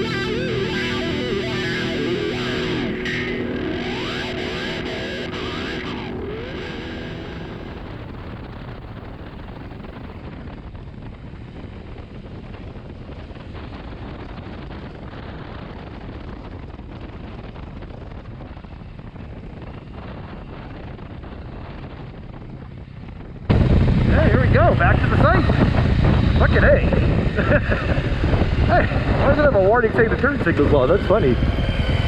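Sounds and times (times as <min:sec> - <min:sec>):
motorcycle running: 0:00.0 - 0:10.2, 0:22.5 - 0:32.0
wind rush on microphone: 0:00.0 - 0:32.0.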